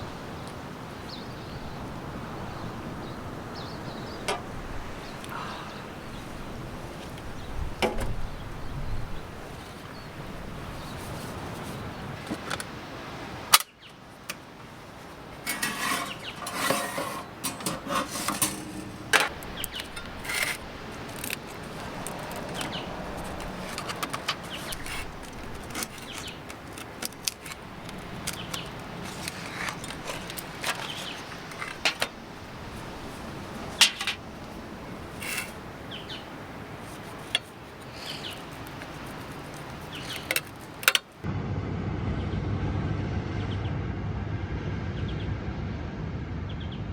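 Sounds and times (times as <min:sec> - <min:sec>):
steady background hiss: 0:00.0 - 0:41.2
gear clinking and rattling: 0:15.4 - 0:41.2.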